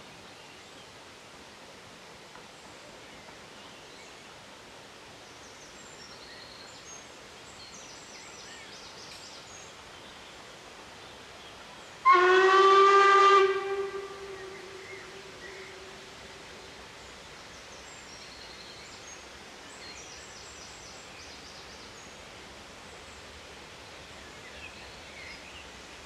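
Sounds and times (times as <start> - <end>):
steam locomotive whistle blast: 12.0 - 15.0.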